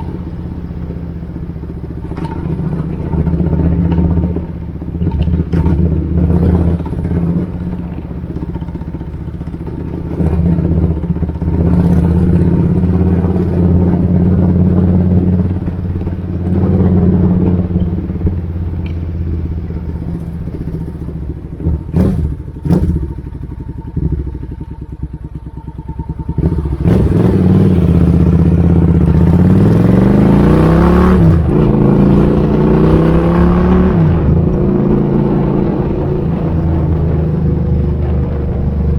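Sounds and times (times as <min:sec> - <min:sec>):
motorcycle engine idling: 0:00.0 - 0:30.6
motorcycle engine revving: 0:00.0 - 0:38.9.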